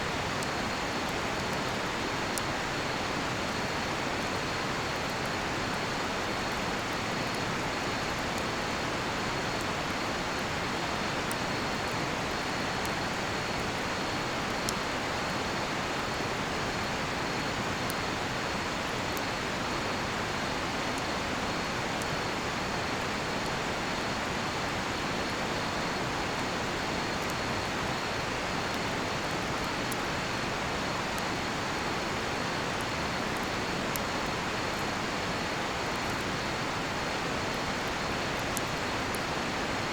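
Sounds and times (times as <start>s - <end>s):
faint campfire crackles: 0.0s - 39.9s.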